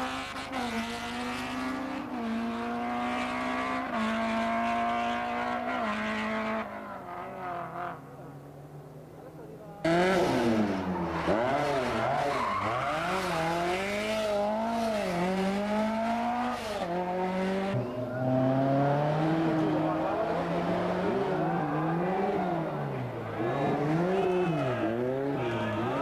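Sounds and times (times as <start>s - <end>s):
rally car engine revving: 0.0s - 8.0s, 9.8s - 26.0s.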